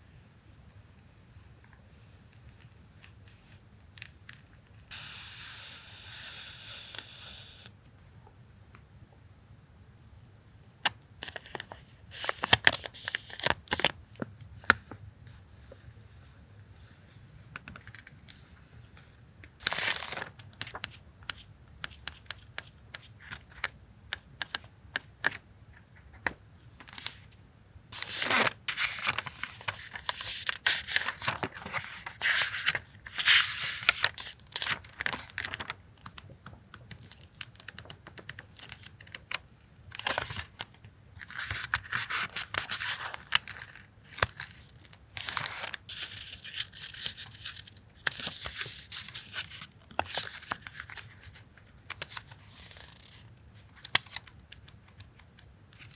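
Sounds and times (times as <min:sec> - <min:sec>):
paper crinkling and rustling: 0:11.2 - 0:14.9, 0:19.6 - 0:23.8, 0:24.4 - 0:27.3, 0:28.0 - 0:55.9.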